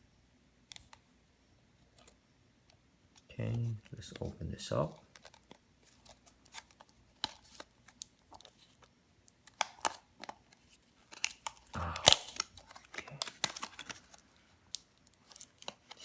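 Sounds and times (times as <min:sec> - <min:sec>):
packaging rustling and snapping: 0:05.0 - 0:16.0
plastic and cardboard packaging clicks: 0:05.0 - 0:16.0.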